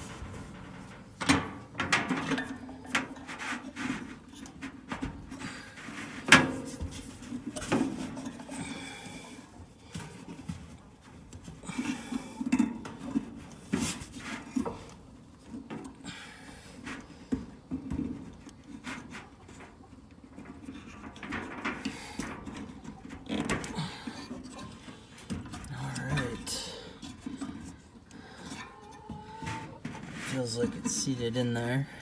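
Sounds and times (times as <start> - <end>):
metal parts clattering: 0.0 - 2.7.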